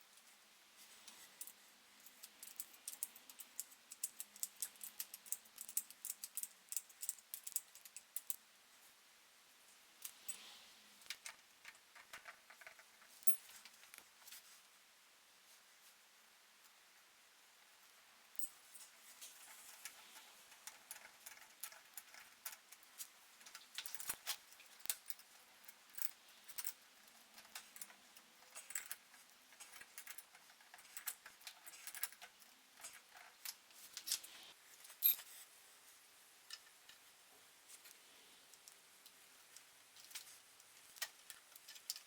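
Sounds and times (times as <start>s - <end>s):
hand tools and metal parts clicking: 1.0s - 8.4s, 18.3s - 35.3s, 39.6s - 42.0s.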